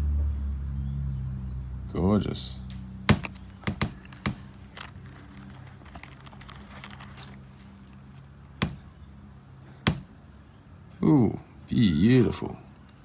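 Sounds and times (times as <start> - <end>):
stones clicking together: 3.1 - 8.9
rustling: 3.1 - 9.0, 9.9 - 10.1.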